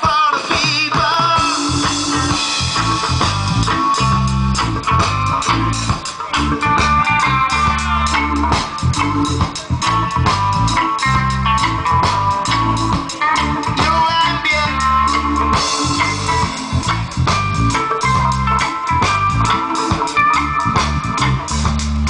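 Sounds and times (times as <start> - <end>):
bass guitar line: 0.0 - 22.0
drum kit steady beat: 0.0 - 22.0
guitar: 0.0 - 22.0.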